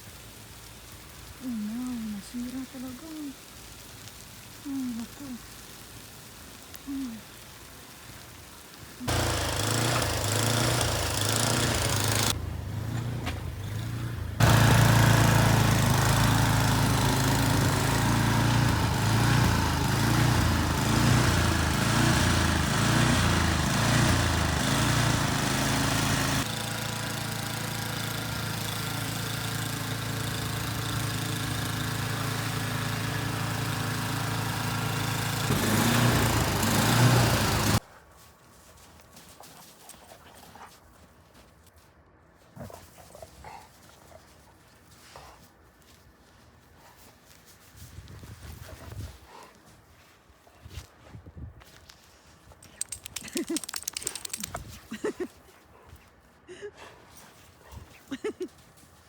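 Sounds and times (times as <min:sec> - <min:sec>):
snowblower engine running: 0:09.0 - 0:37.8.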